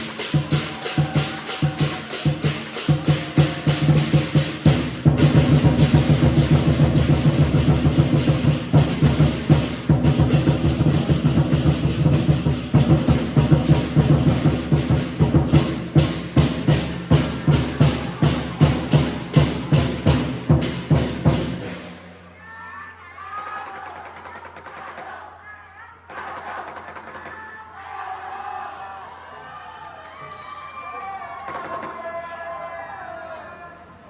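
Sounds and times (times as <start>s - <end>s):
large drum: 0.0s - 22.3s
crashing cymbals: 0.0s - 22.4s.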